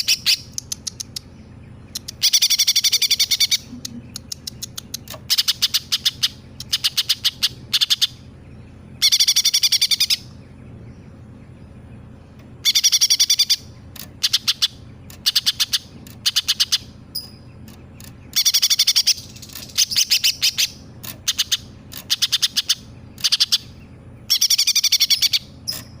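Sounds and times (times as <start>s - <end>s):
songbird singing high trilled phrases: 0.0s - 26.0s.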